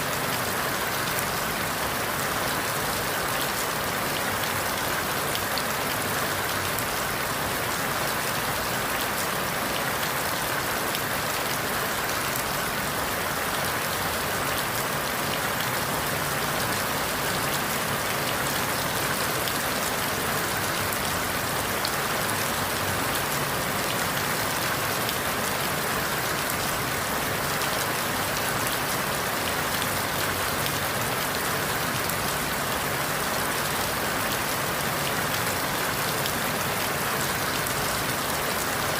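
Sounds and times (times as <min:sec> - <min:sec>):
rain falling through leaves: 0:00.0 - 0:38.9.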